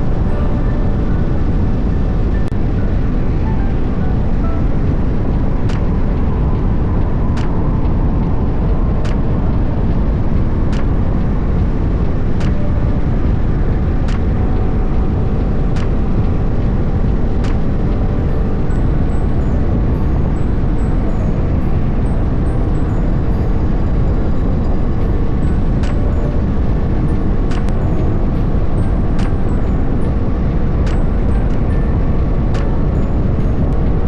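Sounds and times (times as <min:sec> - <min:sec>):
wind and road noise: 0:00.0 - 0:34.0.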